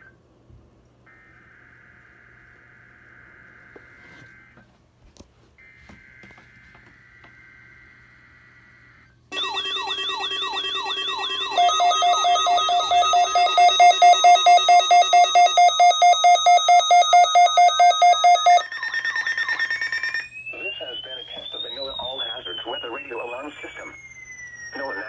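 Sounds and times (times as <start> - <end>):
falling siren-like alarm sweeps: 5.6 - 25.0
rapid pulsed beeps: 9.4 - 25.0
steady electronic tone: 9.4 - 25.0.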